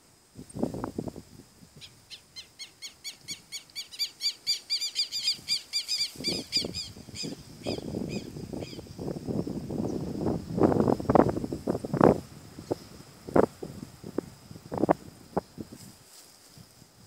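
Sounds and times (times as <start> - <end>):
bird calling repeated high notes: 1.8 - 8.8.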